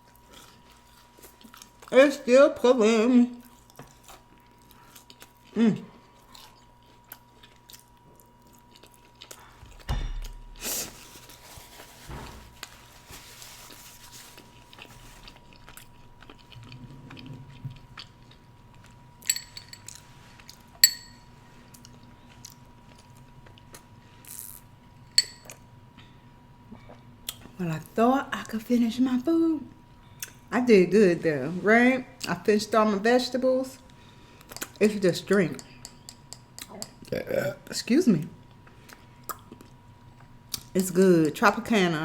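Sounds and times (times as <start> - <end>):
person chewing food: 0.0 - 1.9, 3.4 - 11.4, 14.3 - 21.0, 21.7 - 24.6, 38.5 - 40.7.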